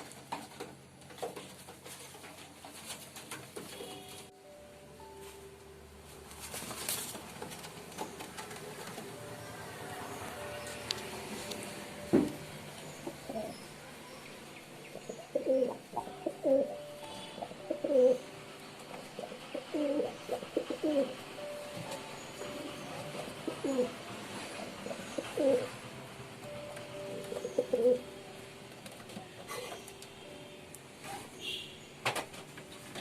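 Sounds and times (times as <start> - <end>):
pigeons cooing: 7.7 - 13.8, 14.8 - 25.9, 27.0 - 28.2.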